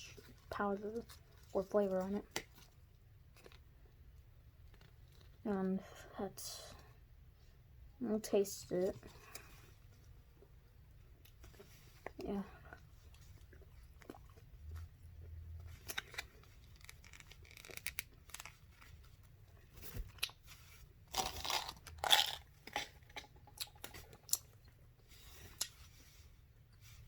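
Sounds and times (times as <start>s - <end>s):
crackly noise: 11.3s - 20.4s
gum chewing mouth clicks: 25.5s - 25.8s.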